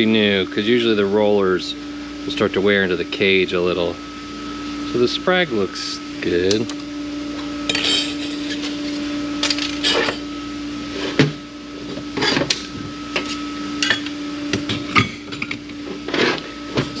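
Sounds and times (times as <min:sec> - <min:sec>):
steady hum: 0:00.0 - 0:17.0
metal parts clinking on workbench: 0:07.7 - 0:10.2.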